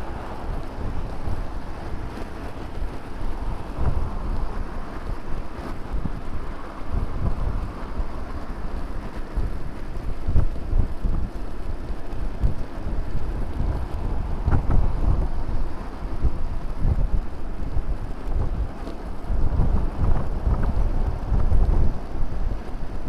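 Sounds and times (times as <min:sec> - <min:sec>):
road noise: 0:00.0 - 0:23.0
wind buffeting microphone: 0:00.0 - 0:23.0.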